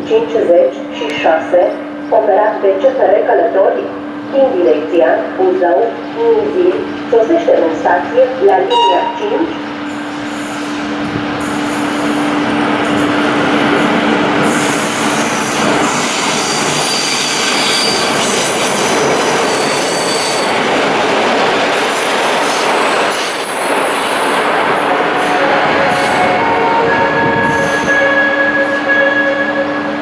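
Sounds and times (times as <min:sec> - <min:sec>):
train wheels rumbling on rail: 0:00.1 - 0:30.0
wheel squeal: 0:14.6 - 0:20.6.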